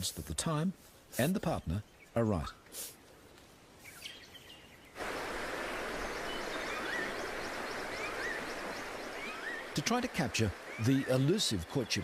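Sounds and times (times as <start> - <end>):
soft bird chirps: 1.2 - 12.0
rainforest hiss: 2.4 - 12.0
bird whistle rising and falling: 5.7 - 9.8.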